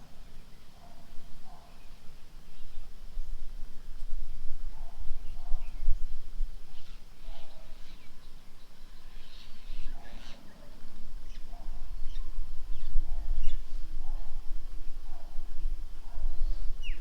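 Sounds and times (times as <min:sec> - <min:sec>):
birds chirping: 0:06.7 - 0:13.7.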